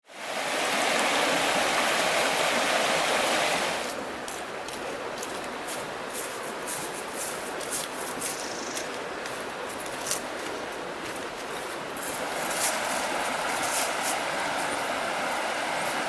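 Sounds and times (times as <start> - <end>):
river water rushing: 0.1 - 16.0
light clicks and rustles: 3.8 - 12.8.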